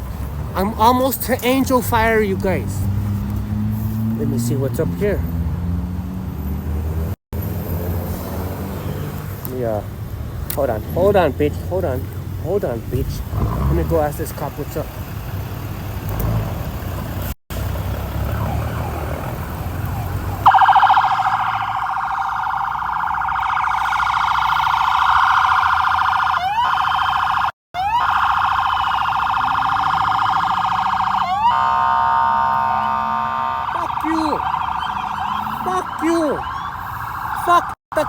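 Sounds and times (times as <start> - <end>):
motorcycle engine and road rumble: 0.0 - 38.0
police siren warbling: 18.1 - 38.0.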